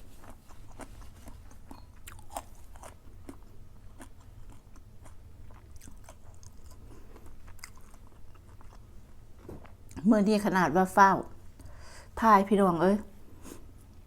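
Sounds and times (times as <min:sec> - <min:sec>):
person chewing crunchy food: 0:00.0 - 0:10.0.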